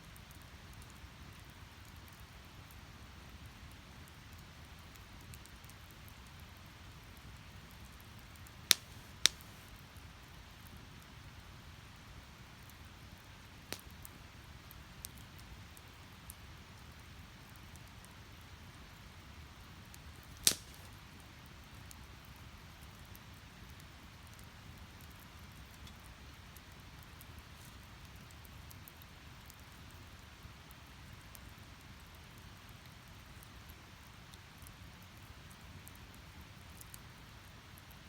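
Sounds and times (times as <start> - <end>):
fire crackles: 0.0 - 38.0
rush of flames: 8.7 - 9.7, 20.1 - 21.0
loud sharp pop: 20.4 - 20.9.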